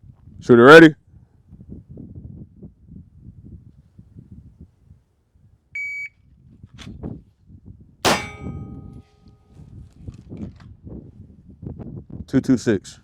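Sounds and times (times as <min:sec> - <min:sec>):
loud pistol shot: 0:08.1 - 0:09.0.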